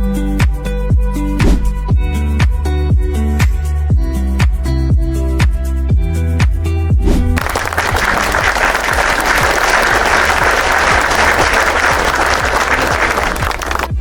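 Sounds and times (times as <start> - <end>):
applause: 7.4 - 14.0.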